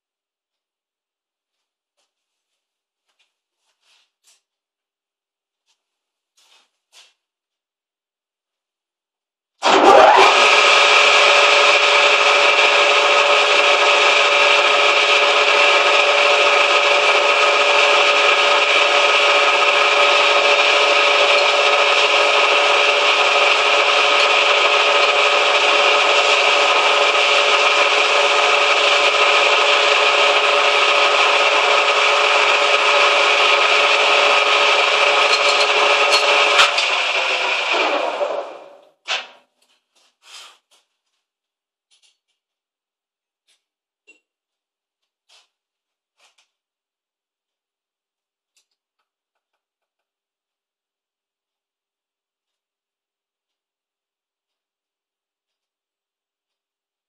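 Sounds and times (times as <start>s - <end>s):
metal lathe cutting scrape: 9.6s - 38.8s.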